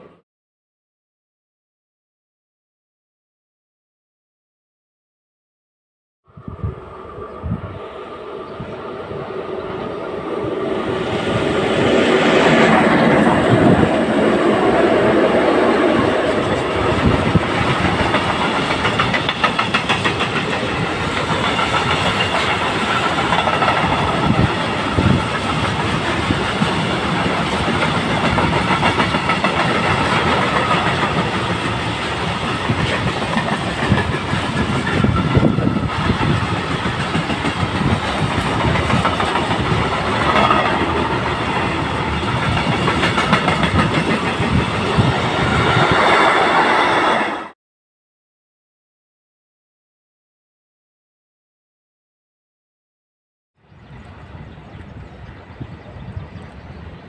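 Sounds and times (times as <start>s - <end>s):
freight train wheels rumbling: 6.5s - 47.6s.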